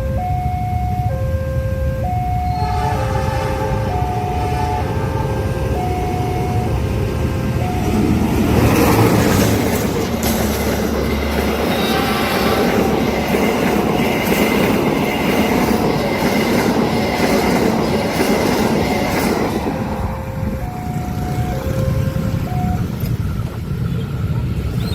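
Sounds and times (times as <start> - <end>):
two-tone crossing warning signal: 0.0 - 24.9
train wheels clattering on rails: 7.1 - 24.9
wheels squealing: 7.5 - 24.9.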